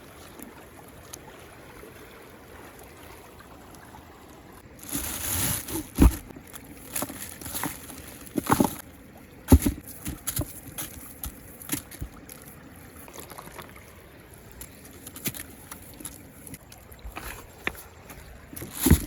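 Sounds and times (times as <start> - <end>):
water splashing: 0.0 - 19.0
moving water washing: 4.6 - 19.0.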